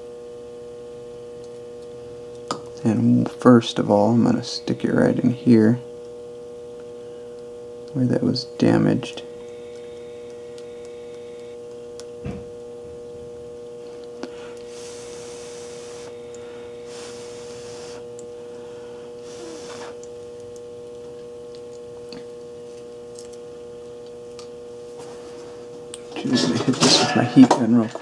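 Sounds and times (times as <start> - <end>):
high-pitched hum: 0.0 - 28.0
hissing rustles: 14.3 - 18.2, 19.2 - 20.0.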